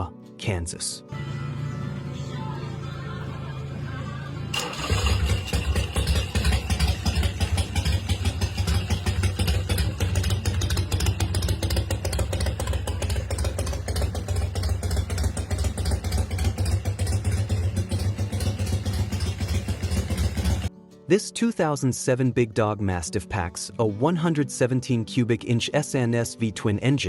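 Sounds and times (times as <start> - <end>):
motorcycle engine idling: 1.2 - 20.7.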